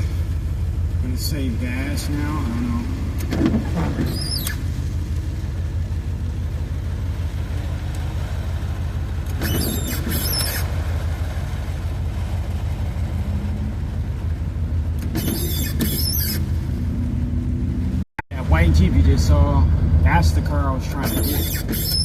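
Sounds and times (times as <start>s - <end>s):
van engine and road rumble: 0.0s - 22.0s.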